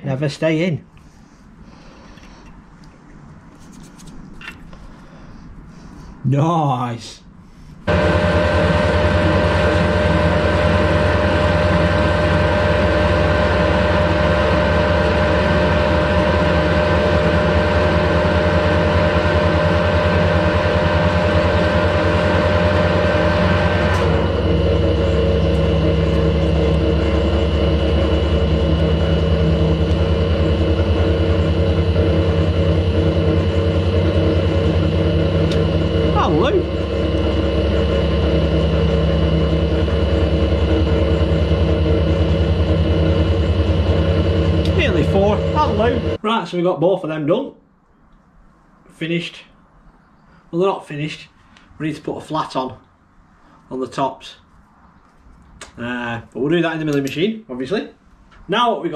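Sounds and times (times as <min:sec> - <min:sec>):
lathe machine hum: 0:07.8 - 0:46.2.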